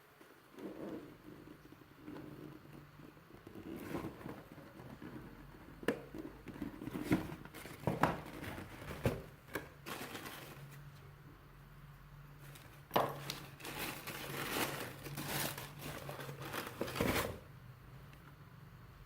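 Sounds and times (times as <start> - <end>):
packaging rustling and crinkling: 6.5 - 11.0, 12.4 - 17.4.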